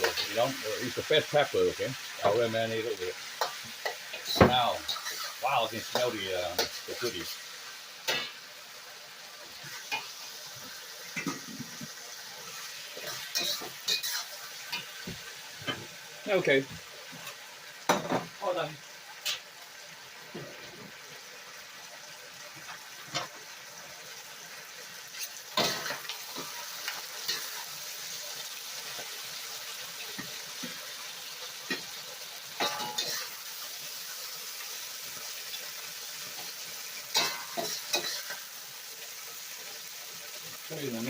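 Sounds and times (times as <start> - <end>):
food sizzling in a wok: 0.0 - 41.0
utensil scraping a wok: 3.2 - 8.4, 11.1 - 15.0, 32.6 - 33.4, 36.3 - 38.5.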